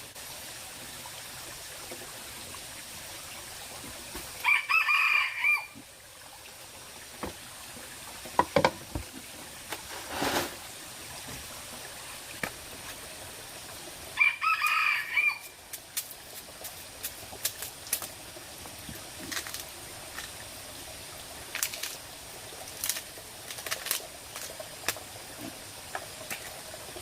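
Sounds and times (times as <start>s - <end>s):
rooster crowing: 4.4s - 5.8s, 14.2s - 15.5s
rustle: 7.2s - 27.0s.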